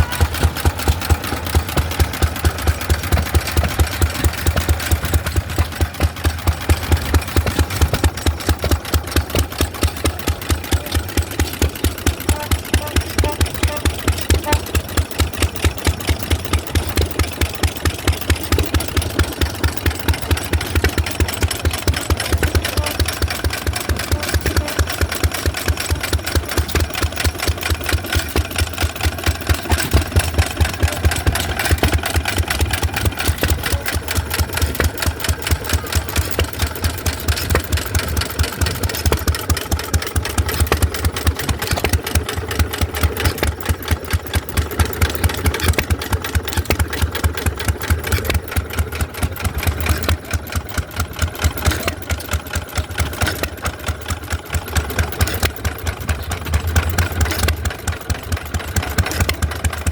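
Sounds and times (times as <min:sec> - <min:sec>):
stationary gas engines running: 0:00.0 - 0:59.9.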